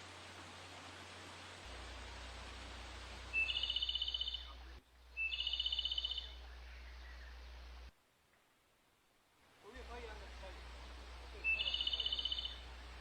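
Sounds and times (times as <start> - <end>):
steady background hiss: 0.0 - 13.0
bird trilling: 3.3 - 4.6, 5.2 - 7.3, 11.4 - 12.6.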